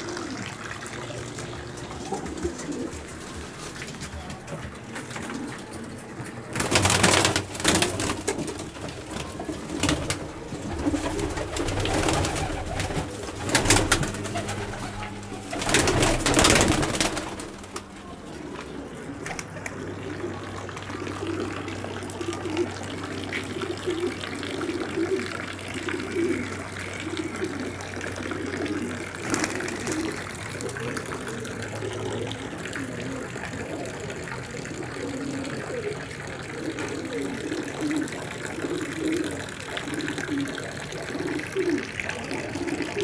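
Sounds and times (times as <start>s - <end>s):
pigeons cooing: 0.0s - 43.0s
loud rustling: 1.7s - 19.6s.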